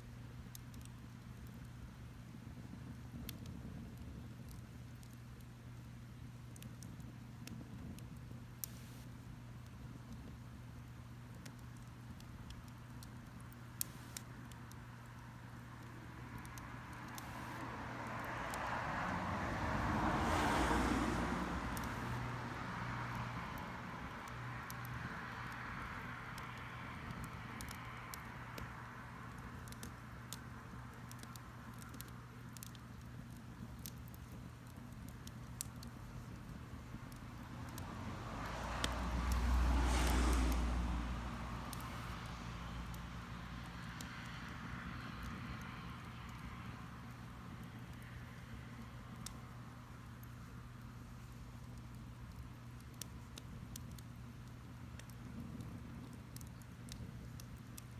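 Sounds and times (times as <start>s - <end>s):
faint bonfire crackles: 0.0s - 57.9s
vehicle passing: 16.2s - 24.2s, 37.4s - 48.0s.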